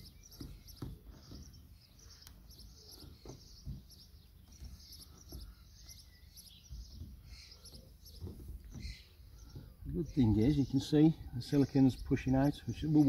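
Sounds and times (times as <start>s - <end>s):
small bird chirping: 0.0s - 13.0s
soft low knocks: 2.9s - 11.4s.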